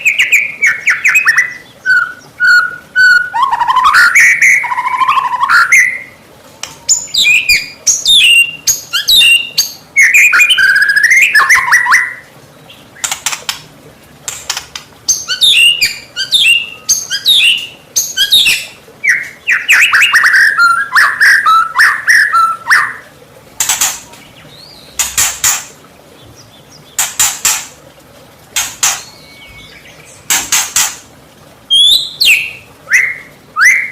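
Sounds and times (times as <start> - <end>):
bird singing whistled phrases: 0.0 - 6.2, 6.8 - 12.2, 15.2 - 23.1, 29.0 - 30.0, 31.7 - 33.9
harsh rasping bird calls: 14.3 - 27.8, 28.6 - 31.1.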